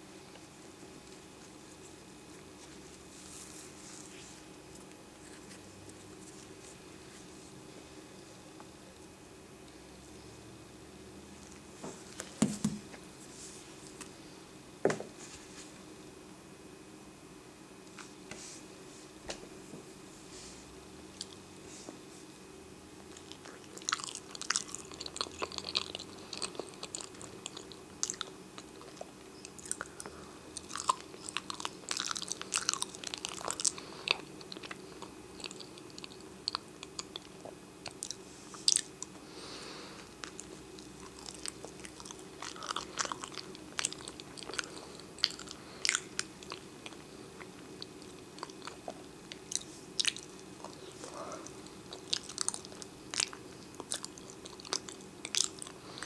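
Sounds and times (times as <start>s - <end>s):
faint low hum: 0.0s - 56.0s
person chewing banana: 23.0s - 56.0s.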